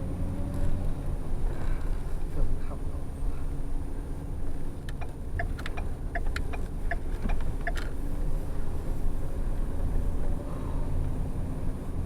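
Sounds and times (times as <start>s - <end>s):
bus engine rumble: 0.0s - 12.0s
road noise: 0.0s - 12.0s
turn signal ticking: 4.8s - 8.0s.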